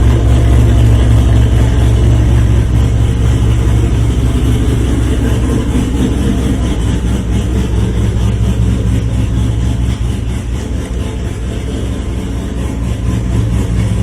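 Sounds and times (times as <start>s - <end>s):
car engine idling loudly: 0.0s - 14.0s.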